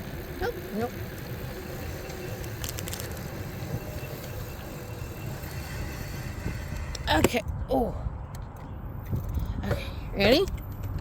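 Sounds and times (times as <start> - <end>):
road rumble from electric bike: 0.0 - 11.0
wind: 0.0 - 11.0.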